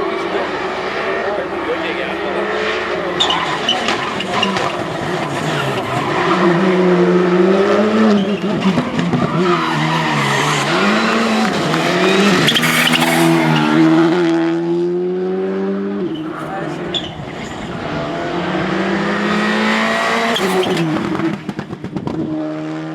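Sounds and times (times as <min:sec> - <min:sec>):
rally car engine revving: 0:00.0 - 0:22.9
tyre noise: 0:03.1 - 0:14.4, 0:15.9 - 0:22.1.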